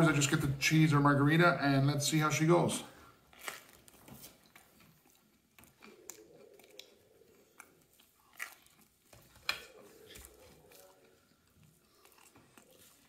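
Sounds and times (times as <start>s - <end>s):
person chewing crisp pizza: 3.2s - 13.0s
mouth clicks: 5.6s - 8.6s.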